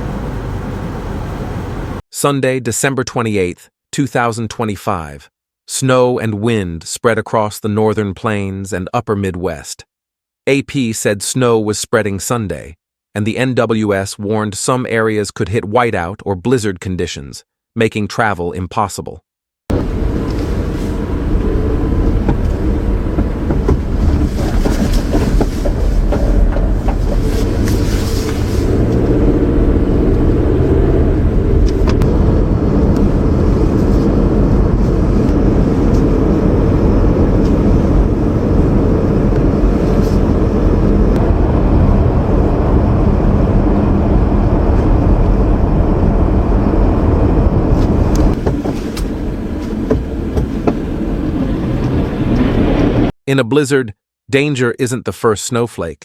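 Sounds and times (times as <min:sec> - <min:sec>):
loud low rumbling: 0:00.0 - 0:02.0, 0:19.7 - 0:53.1.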